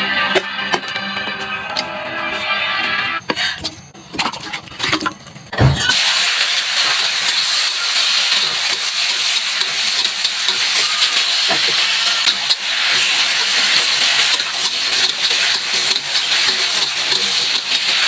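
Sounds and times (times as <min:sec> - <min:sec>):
thump: 0:05.6 - 0:05.9
food sizzling in hot oil: 0:05.9 - 0:18.0.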